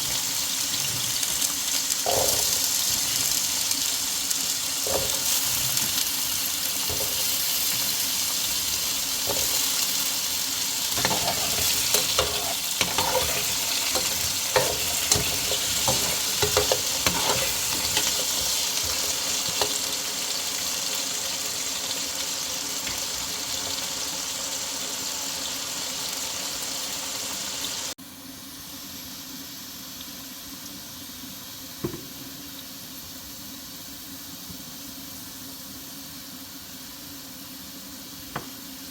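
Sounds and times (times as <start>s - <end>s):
food sizzling in a pan: 0.0s - 38.9s
utensil scraping a pan: 2.0s - 3.4s, 4.9s - 6.2s, 6.8s - 10.0s, 10.9s - 19.8s.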